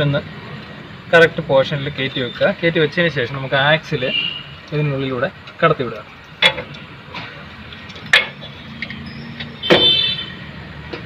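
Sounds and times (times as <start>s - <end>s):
metal axle shaft knocking: 7.8s - 9.9s.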